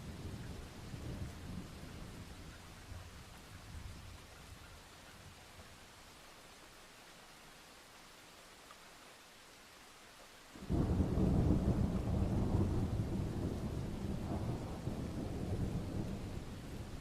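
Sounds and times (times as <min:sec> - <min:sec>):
rain hiss: 0:00.0 - 0:17.0
deep thunder rumble: 0:10.6 - 0:17.0.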